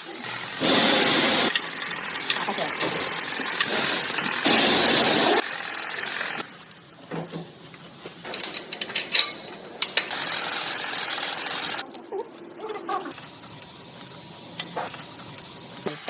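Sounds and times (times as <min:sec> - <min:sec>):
loud steady hiss: 0:00.0 - 0:06.5, 0:10.0 - 0:11.8, 0:13.1 - 0:16.0.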